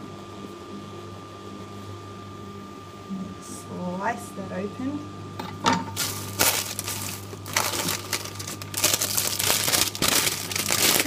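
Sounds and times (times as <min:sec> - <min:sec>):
microwave oven humming: 0:00.0 - 0:11.0
packaging crinkling: 0:05.9 - 0:11.0.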